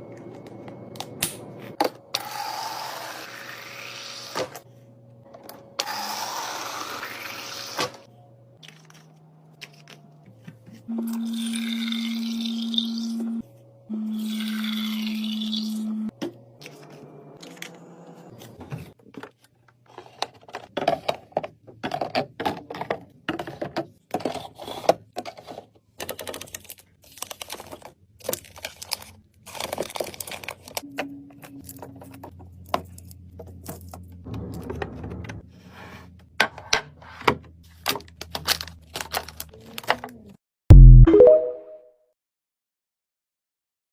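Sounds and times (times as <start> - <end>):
plastic packaging crinkling: 26.1 - 30.8.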